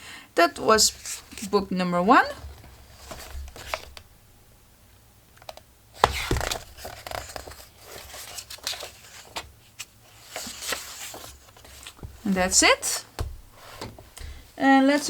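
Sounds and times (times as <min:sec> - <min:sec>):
paper pages rustling: 0:02.5 - 0:04.0, 0:06.0 - 0:14.4.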